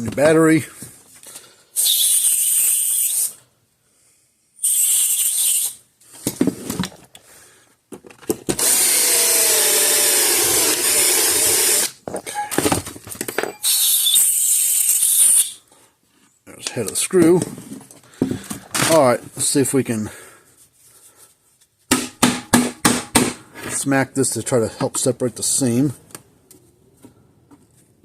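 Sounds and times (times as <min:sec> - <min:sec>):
power drill drilling metal: 0:08.6 - 0:12.0.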